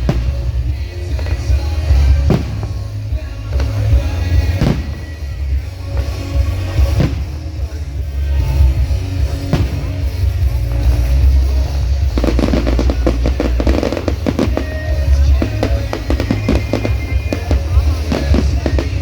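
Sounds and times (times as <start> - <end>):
firework bang: 0.0 - 3.0, 3.6 - 7.8, 9.4 - 10.4
fireworks crackling: 0.0 - 19.0
loud music with heavy bass: 0.0 - 19.0.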